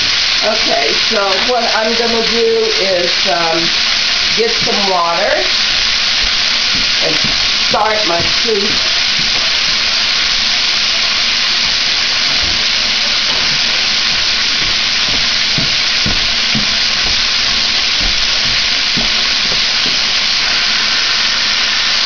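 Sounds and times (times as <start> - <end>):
vegetables sizzling in fat: 0.0 - 22.0
soft knocks: 6.2 - 9.8, 11.7 - 20.2.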